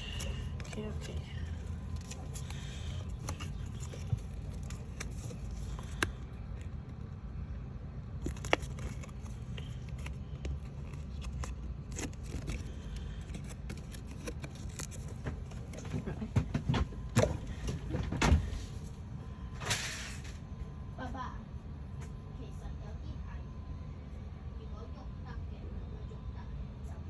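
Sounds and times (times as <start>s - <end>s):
paper being handled and cut: 0.0s - 6.9s, 8.2s - 16.0s
steady low hum: 0.0s - 27.0s.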